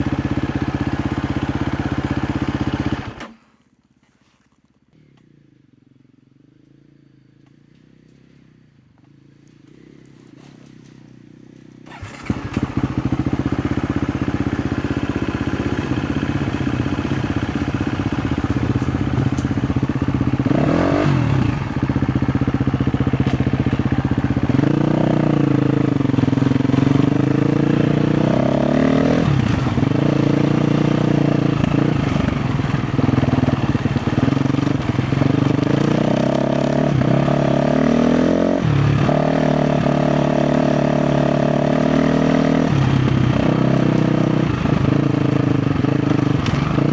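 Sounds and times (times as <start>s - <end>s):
dirt bike engine revving: 11.8s - 46.9s.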